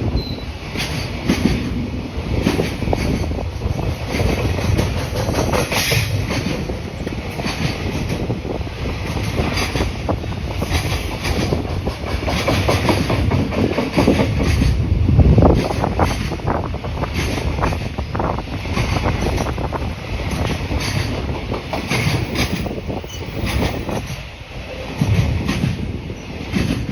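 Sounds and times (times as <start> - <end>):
freight train wheels clattering: 0.0 - 26.9.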